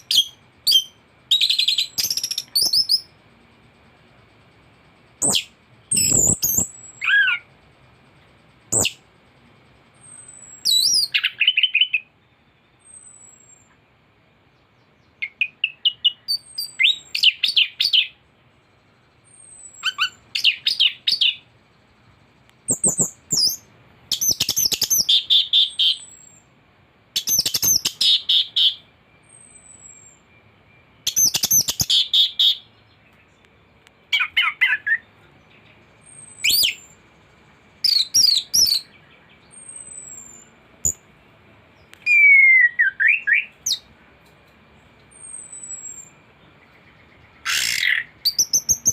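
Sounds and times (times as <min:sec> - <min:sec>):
faint steady high tone: 0:28.7 - 0:31.5, 0:32.6 - 0:47.4.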